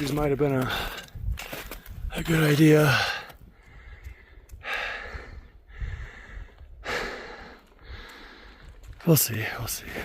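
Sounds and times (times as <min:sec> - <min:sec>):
person breathing hard: 0:02.9 - 0:08.8.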